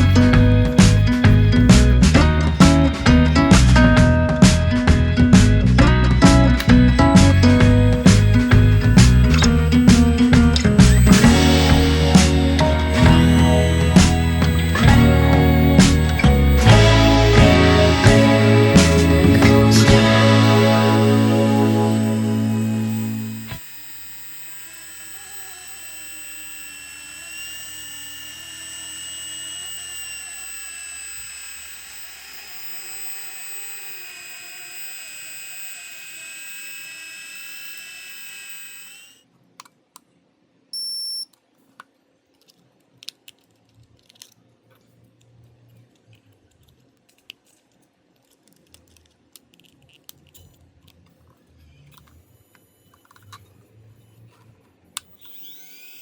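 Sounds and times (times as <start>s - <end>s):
rc helicopter motors whining: 0.0s - 39.3s, 55.0s - 56.0s
short electronic beep: 40.8s - 41.3s.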